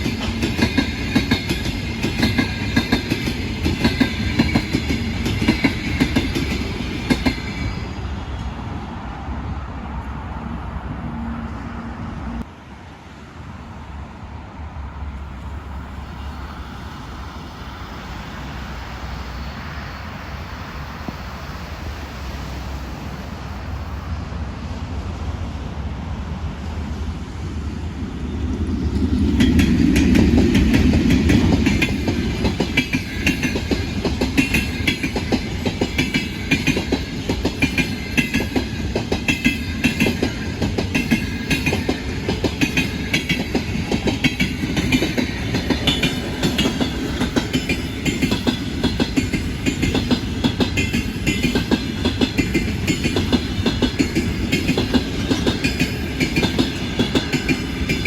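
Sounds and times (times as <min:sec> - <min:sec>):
train wheels clickety-clack: 0:00.0 - 0:08.7, 0:28.0 - 0:58.0
locomotive passing: 0:00.0 - 0:58.0.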